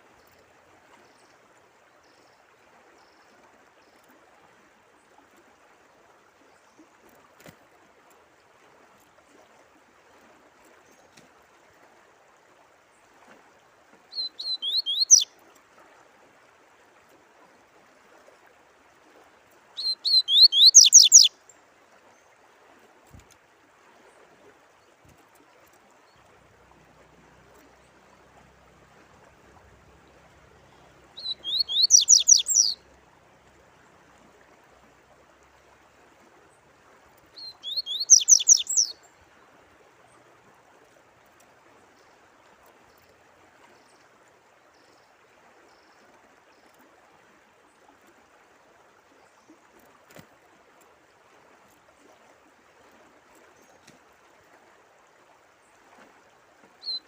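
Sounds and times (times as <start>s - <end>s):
faint running water: 0.0s - 57.0s
songbird singing high notes: 14.1s - 15.3s, 19.8s - 21.3s, 31.2s - 32.8s, 37.4s - 39.0s.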